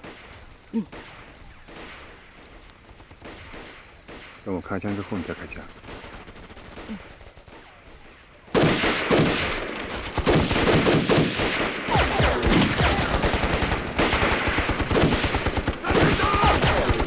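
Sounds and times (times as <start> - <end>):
heavy gunfire volley: 2.9 - 7.8, 8.5 - 17.0.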